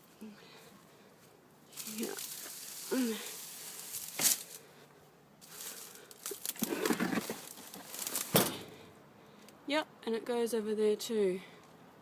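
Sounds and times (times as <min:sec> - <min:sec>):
crinkling handling noise: 0:01.2 - 0:08.8.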